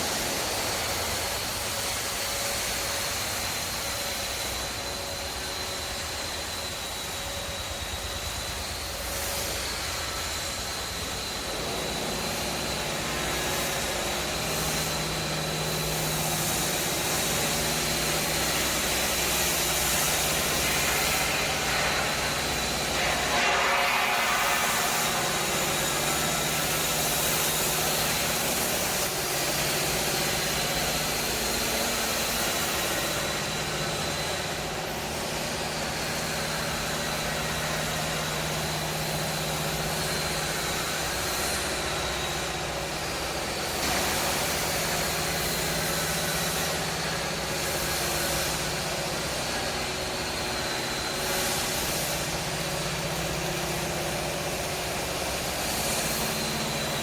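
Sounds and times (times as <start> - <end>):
high-pitched whine: 0.0 - 57.0.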